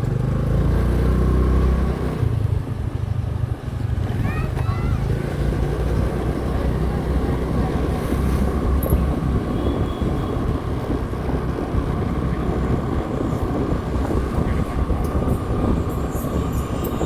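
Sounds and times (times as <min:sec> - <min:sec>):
motorcycle engine drone: 0:04.9 - 0:17.0
wind noise on microphone: 0:05.9 - 0:17.0.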